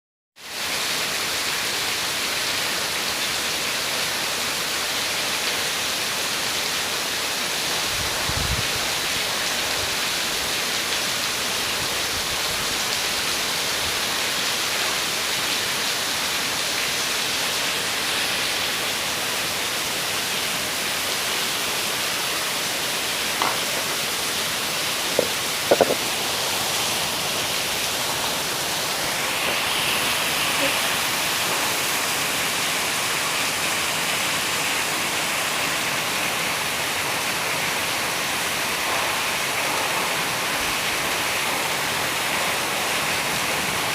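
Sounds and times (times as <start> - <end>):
heavy rain: 0.4 - 43.9.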